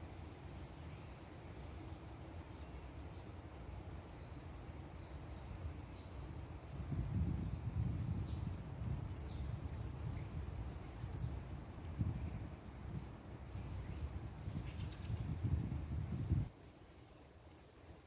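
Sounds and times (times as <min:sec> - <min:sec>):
small birds calling: 0:05.0 - 0:17.4
low rumble on microphone: 0:05.2 - 0:16.5.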